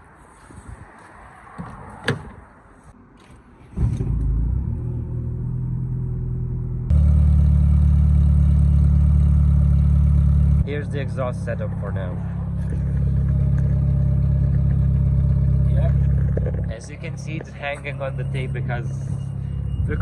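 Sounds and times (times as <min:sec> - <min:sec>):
car engine idling loudly: 0:06.9 - 0:20.0.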